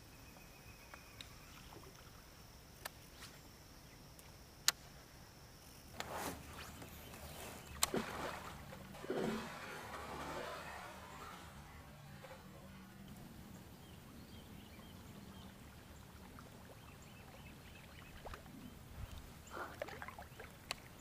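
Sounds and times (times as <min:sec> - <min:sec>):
water swishing from paddling: 0:06.0 - 0:13.2, 0:13.9 - 0:21.0.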